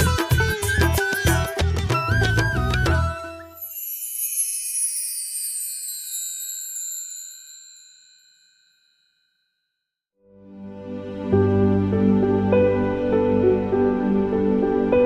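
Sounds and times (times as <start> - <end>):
high shimmering chime: 3.4 - 9.7.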